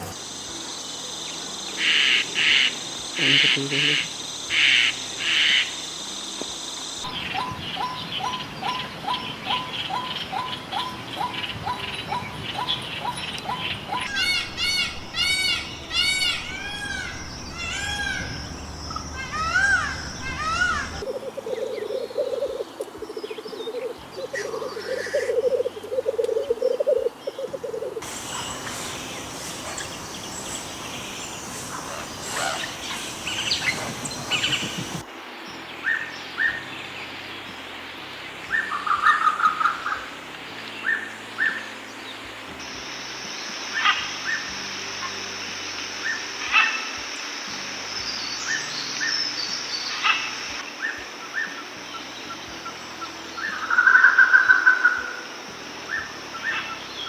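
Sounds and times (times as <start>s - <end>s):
small birds chirping: 7.0s - 37.5s.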